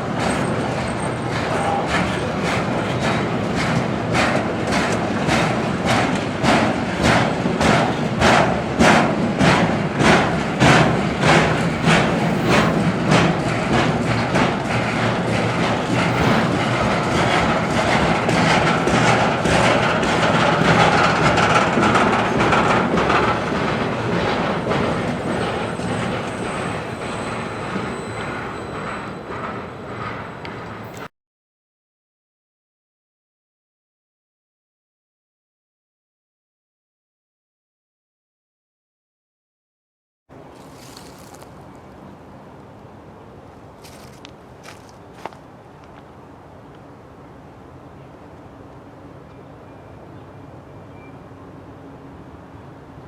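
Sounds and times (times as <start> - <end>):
freight train rolling past: 0.0 - 31.1
wheels clicking over rail joints: 0.0 - 31.1.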